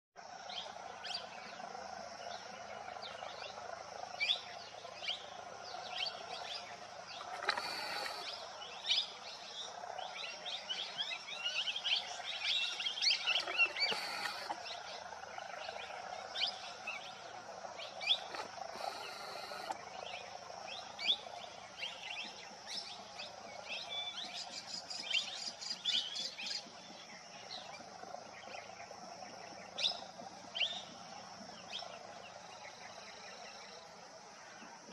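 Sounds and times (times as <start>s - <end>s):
high insect drone: 0.2s - 26.0s
birds chirping: 0.6s - 33.8s.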